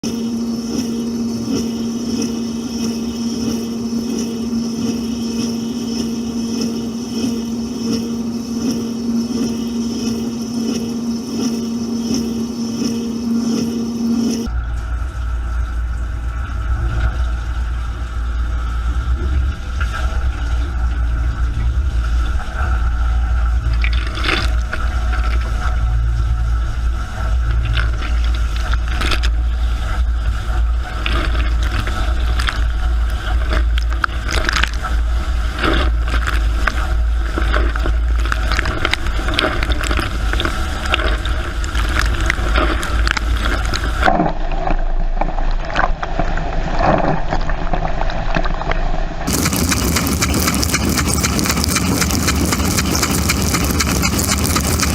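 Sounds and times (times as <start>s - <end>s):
dishwasher motor hum: 0.0s - 17.5s, 49.3s - 54.9s
water jets spraying: 49.3s - 54.9s.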